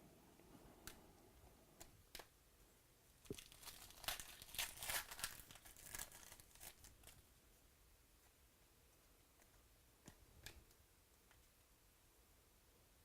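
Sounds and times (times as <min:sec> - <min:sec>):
foil wrapper tearing and crinkling: 0:03.3 - 0:07.2.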